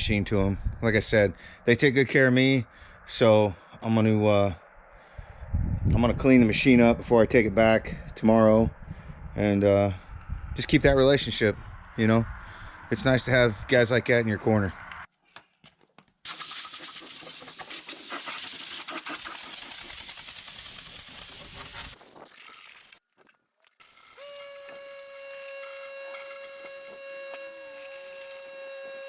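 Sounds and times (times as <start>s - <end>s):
compressed air hissing from nozzle: 16.3s - 22.3s
steady whining tone: 24.2s - 29.0s.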